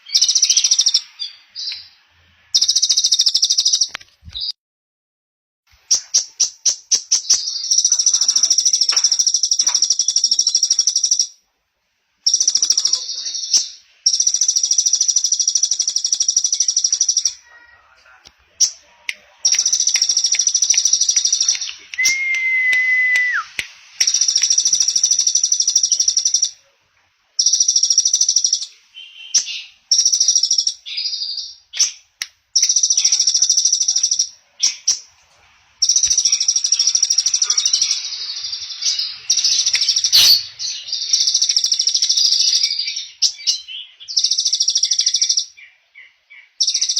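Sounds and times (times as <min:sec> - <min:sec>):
clear steady whistle: 0:22.0 - 0:23.5
songbird trilling: 0:35.8 - 0:46.9.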